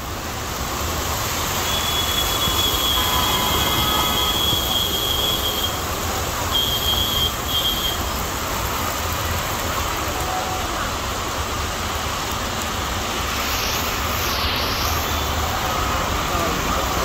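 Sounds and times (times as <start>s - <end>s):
heavy rain: 0.0s - 17.0s
running floodwater: 0.0s - 17.0s
vehicle rumble: 0.0s - 17.0s.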